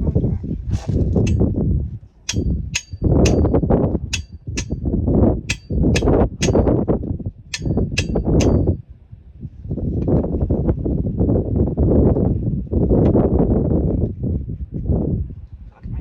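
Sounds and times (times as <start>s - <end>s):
sharp metallic clinks: 2.3s - 4.8s, 5.5s - 6.7s, 7.5s - 8.7s
tools scraping metal parts: 2.3s - 4.8s, 5.5s - 6.6s, 7.5s - 8.7s.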